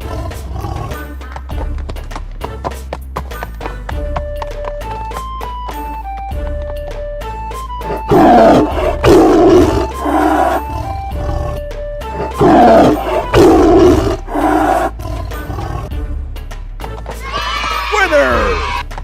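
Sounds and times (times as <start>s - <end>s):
background music: 0.0s - 19.0s
loud animal roars: 7.9s - 15.9s.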